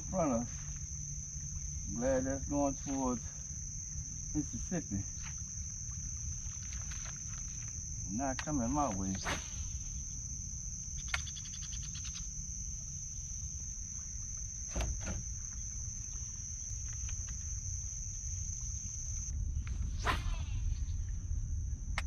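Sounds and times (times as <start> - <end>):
marsh insects droning: 0.0 - 22.0
sharp clicks: 11.0 - 12.2
low rumble: 15.2 - 22.0.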